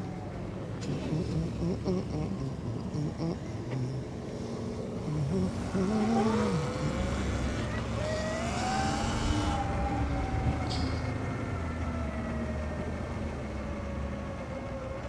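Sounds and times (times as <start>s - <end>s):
electric motor whine: 5.3s - 10.5s.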